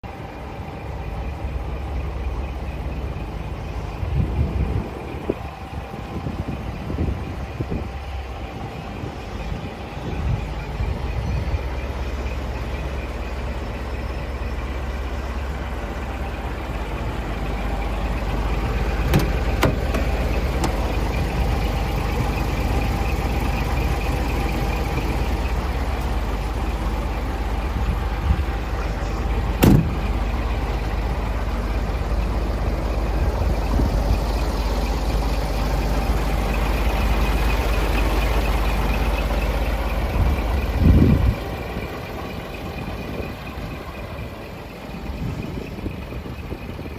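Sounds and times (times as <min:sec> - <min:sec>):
diesel engine idling: 0:00.0 - 0:46.9
thud: 0:29.6 - 0:30.0.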